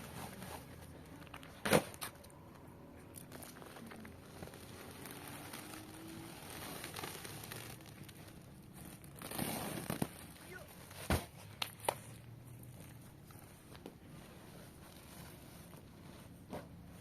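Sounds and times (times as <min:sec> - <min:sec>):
wood fire crackling: 0:02.2 - 0:10.7.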